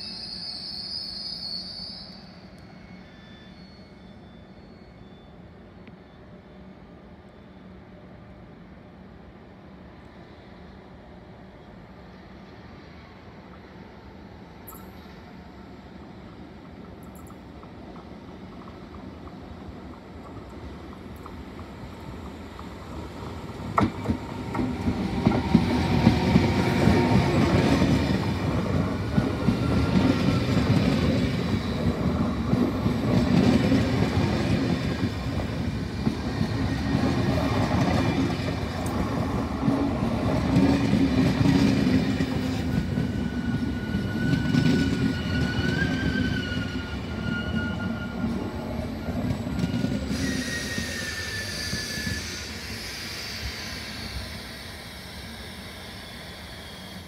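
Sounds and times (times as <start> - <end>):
thin wheel squeals: 0.0 - 5.4, 43.1 - 48.5, 49.5 - 57.0.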